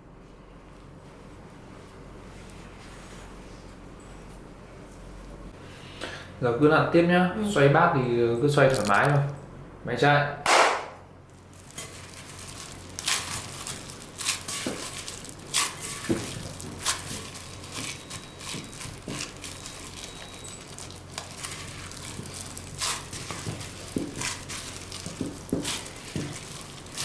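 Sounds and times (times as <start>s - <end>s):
hands mixing dough in a bowl: 8.5s - 9.4s, 11.3s - 27.0s.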